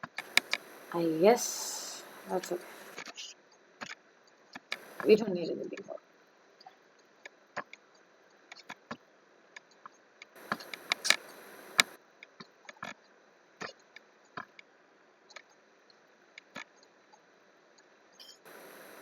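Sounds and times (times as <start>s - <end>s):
computer mouse and keyboard clicks: 0.0s - 0.7s, 10.4s - 13.0s.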